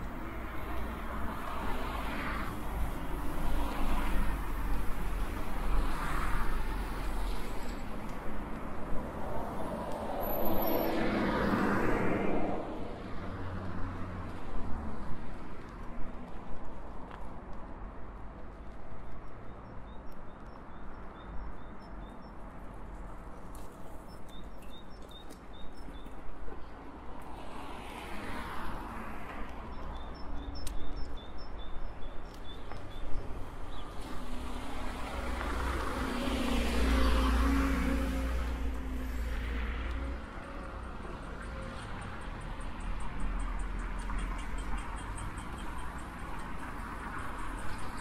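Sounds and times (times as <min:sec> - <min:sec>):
car passing: 0:09.4 - 0:14.4.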